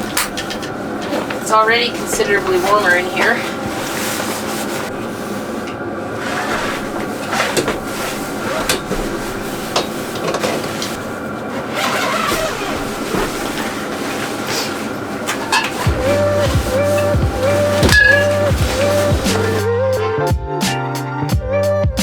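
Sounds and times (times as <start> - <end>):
air heater humming: 0.0 - 19.7.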